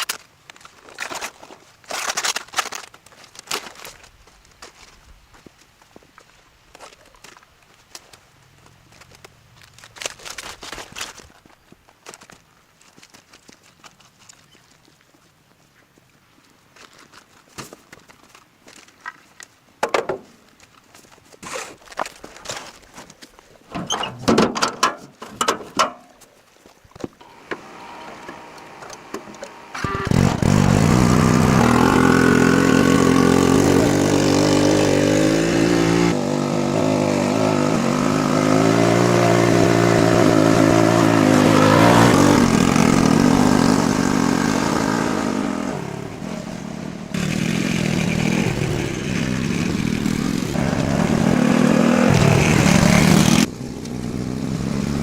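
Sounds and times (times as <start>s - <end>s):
small engine running: 27.2s - 46.4s, 47.1s - 55.0s.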